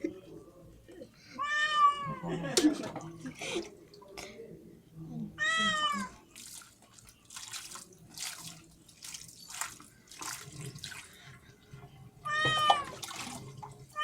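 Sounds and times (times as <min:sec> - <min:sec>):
cat meowing: 0:01.4 - 0:02.3, 0:05.4 - 0:06.2, 0:12.2 - 0:13.0
water splashing and pouring: 0:06.2 - 0:11.3, 0:12.4 - 0:14.0.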